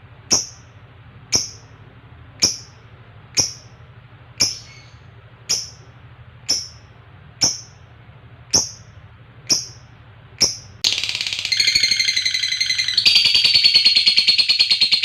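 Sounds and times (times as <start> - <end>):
lovebird shrill calls: 4.4 - 5.8, 10.4 - 15.0.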